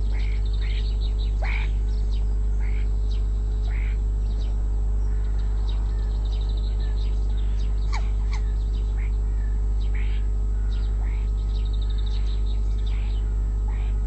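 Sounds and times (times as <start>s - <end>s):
birds chirping and whistling: 0.0s - 14.0s
steady low hum: 0.0s - 14.0s.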